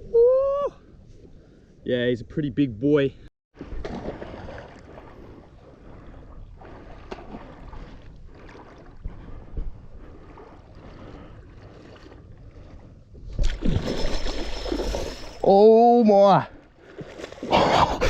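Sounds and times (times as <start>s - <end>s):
water sloshing around legs: 3.6s - 15.4s.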